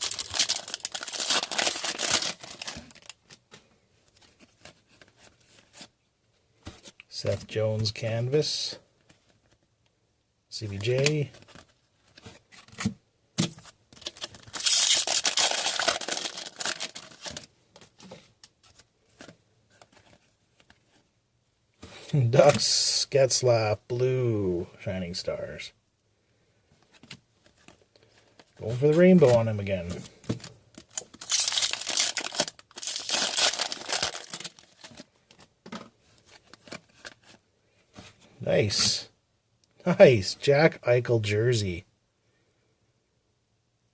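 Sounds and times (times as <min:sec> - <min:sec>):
wrapper tearing and crinkling: 0:00.0 - 0:03.4, 0:14.0 - 0:17.5, 0:30.8 - 0:35.1
cards being handled: 0:00.0 - 0:05.9, 0:10.6 - 0:21.0, 0:26.8 - 0:38.9.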